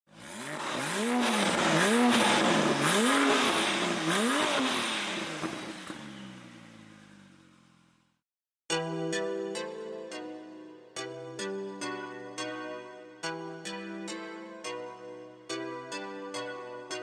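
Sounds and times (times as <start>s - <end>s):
car engine revving: 0.1s - 8.2s.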